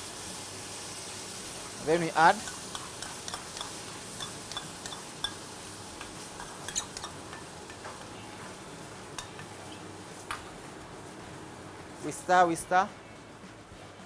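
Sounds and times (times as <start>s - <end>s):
frying sizzle: 0.0s - 12.9s
spoon scraping a metal pan: 2.3s - 8.6s.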